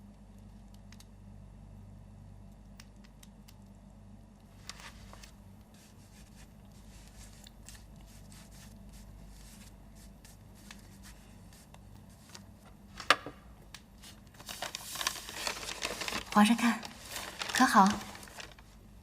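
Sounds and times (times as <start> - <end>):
low steady hum: 0.0 - 19.0
paper rustling: 4.6 - 12.7, 14.0 - 18.8.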